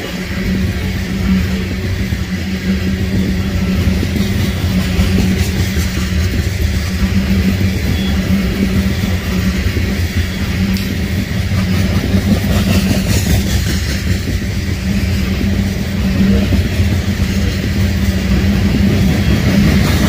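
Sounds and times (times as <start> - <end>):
freight train rumbling past: 0.0 - 20.0.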